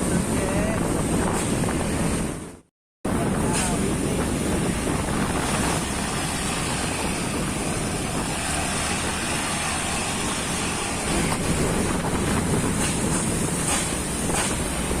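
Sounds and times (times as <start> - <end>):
road and tyre noise: 0.0 - 15.0
truck engine drone: 3.1 - 15.0.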